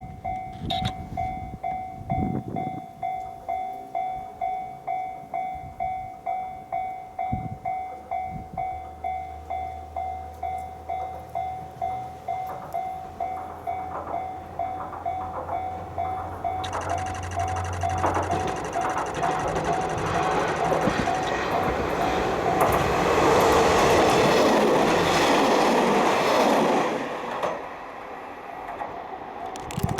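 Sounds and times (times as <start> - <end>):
level crossing alarm dinging: 15.6 - 21.9.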